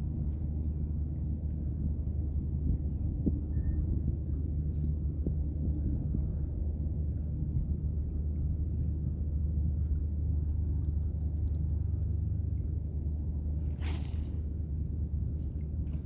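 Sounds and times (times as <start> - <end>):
burst of hiss: 13.8 - 15.5.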